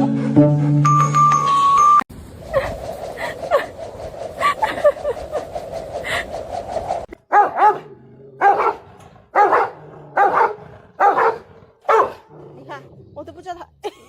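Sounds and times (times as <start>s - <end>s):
dog barking: 7.3s - 12.3s.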